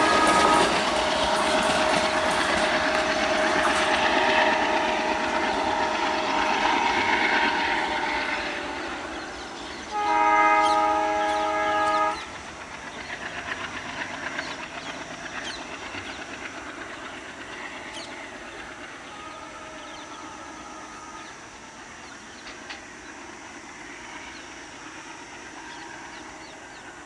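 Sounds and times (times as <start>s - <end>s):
train horn: 0.0s - 12.4s, 18.0s - 22.1s
train wheels clicking over rail joints: 0.0s - 27.0s.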